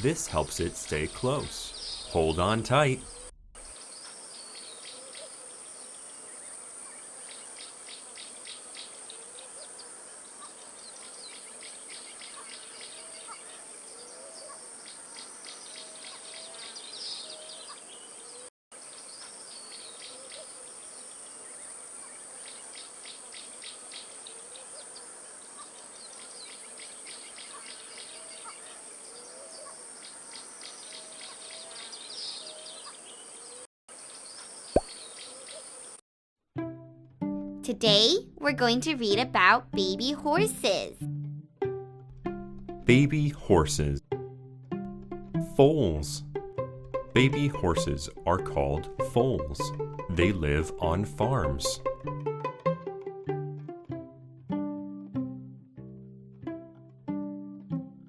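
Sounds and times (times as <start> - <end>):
birds trilling and calling: 0.5 - 36.0.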